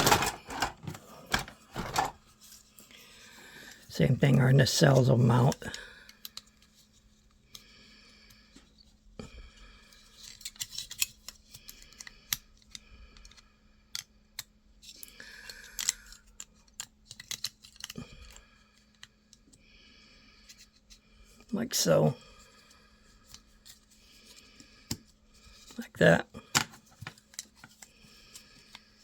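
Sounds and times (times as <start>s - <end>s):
plastic parts clicking together: 0.0s - 2.2s, 5.6s - 6.6s, 10.1s - 19.5s.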